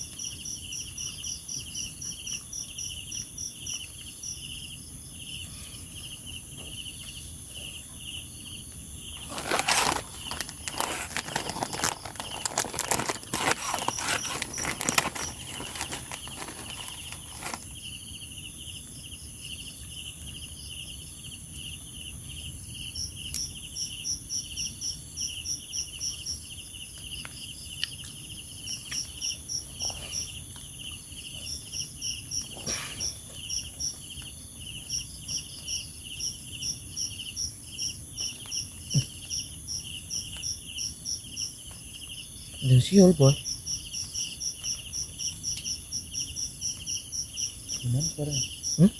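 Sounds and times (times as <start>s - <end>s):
crickets trilling: 0.0s - 48.9s
insect rapid chirps: 0.0s - 48.9s
insect pulsing chirr: 27.7s - 48.9s.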